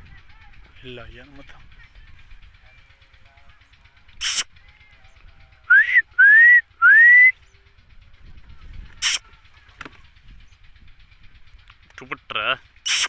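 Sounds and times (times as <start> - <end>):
short harsh parrot burst: 4.2 - 4.5, 9.0 - 9.2
parrot upward-sliding whistles: 5.7 - 7.3.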